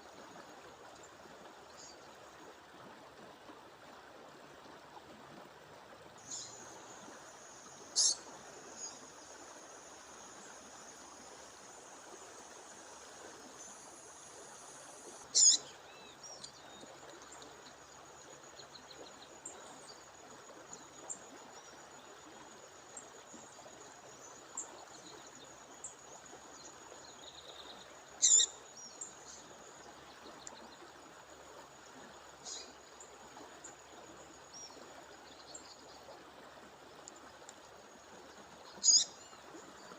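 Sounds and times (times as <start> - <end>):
bird calling: 8.0 - 8.2, 15.3 - 15.6, 28.2 - 28.5, 38.8 - 39.1.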